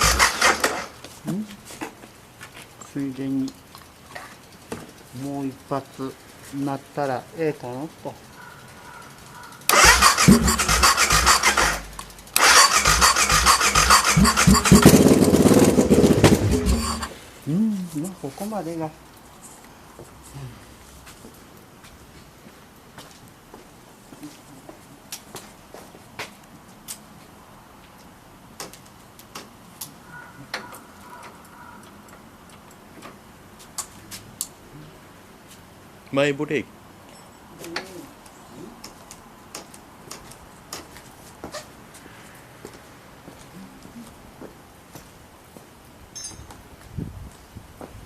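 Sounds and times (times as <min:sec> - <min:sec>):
motorcycle starter cranking engine: 0:00.0 - 0:01.0, 0:08.2 - 0:17.2.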